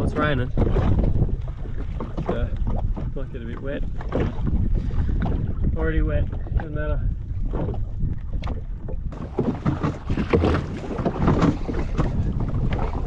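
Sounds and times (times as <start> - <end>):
jet ski engine rumbling: 0.0 - 13.0
water splashing: 0.0 - 13.0
wind buffeting microphone: 0.0 - 13.0.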